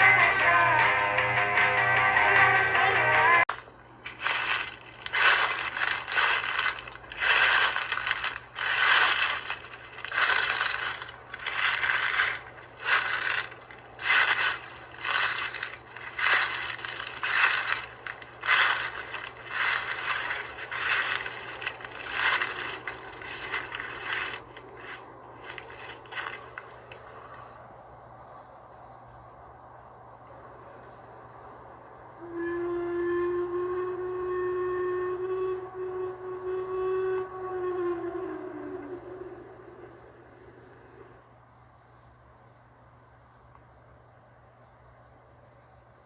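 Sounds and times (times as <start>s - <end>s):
scraping crunching strokes: 3.5s - 27.6s.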